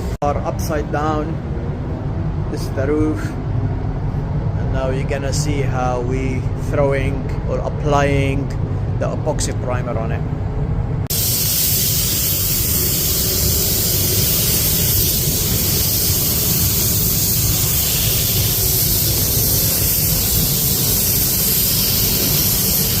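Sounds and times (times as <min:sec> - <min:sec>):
low rumble: 0:00.0 - 0:23.0
paint spray gun hissing: 0:11.1 - 0:23.0.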